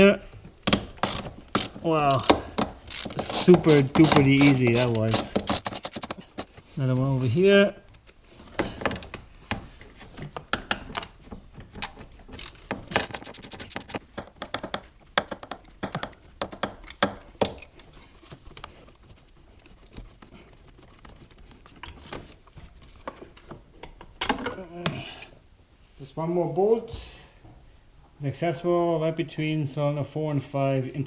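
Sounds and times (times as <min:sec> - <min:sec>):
hand ratchet clicking: 0:01.0 - 0:06.5, 0:11.8 - 0:14.0
metal tools clinking: 0:01.0 - 0:06.6, 0:11.8 - 0:14.0.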